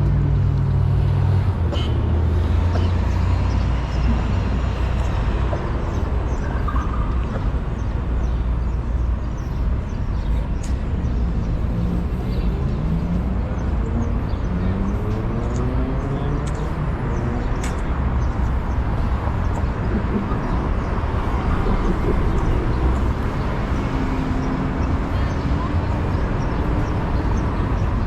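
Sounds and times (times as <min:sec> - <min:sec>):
low city rumble: 0:00.0 - 0:28.0
murmur of voices: 0:19.8 - 0:28.0.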